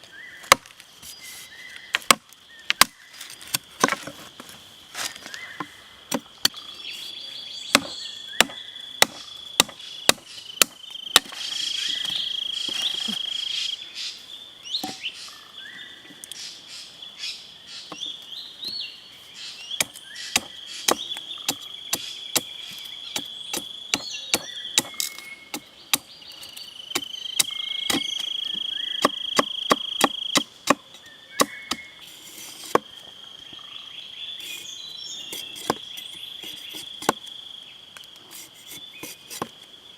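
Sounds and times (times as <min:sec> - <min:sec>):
blade chopping wood: 0:00.4 - 0:00.8, 0:07.7 - 0:12.1, 0:26.9 - 0:28.3, 0:29.0 - 0:31.8, 0:35.3 - 0:37.2
high insect drone: 0:03.2 - 0:15.7, 0:18.9 - 0:39.9.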